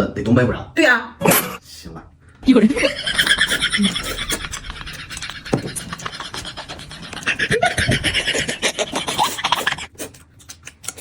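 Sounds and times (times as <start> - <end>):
noodles slurped and chewed: 9.0 - 11.0
wet mouth smacking and clicking: 9.9 - 11.0.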